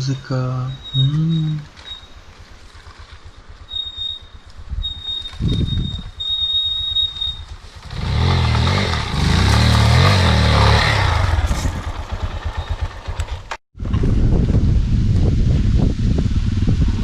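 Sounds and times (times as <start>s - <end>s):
drum brakes squealing: 0.5s - 2.3s, 3.3s - 7.6s, 10.6s - 13.1s
motorbike engine revving: 7.1s - 13.6s.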